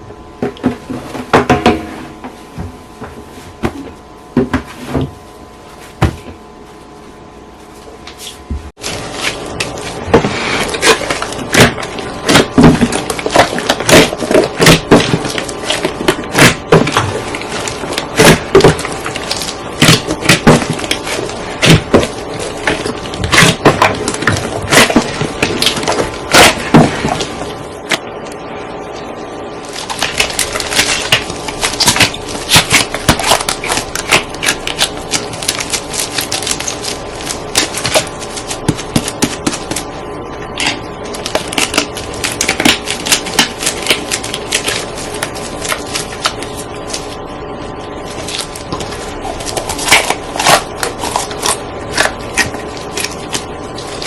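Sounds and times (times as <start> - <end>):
slime popping and crackling: 10.6 - 28.0, 29.7 - 39.9, 40.6 - 47.2, 48.1 - 54.0.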